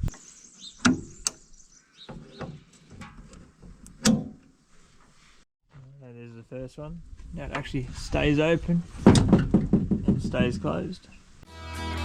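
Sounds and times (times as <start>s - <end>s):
metal knocks and clicks: 2.1s - 4.5s, 9.0s - 10.8s.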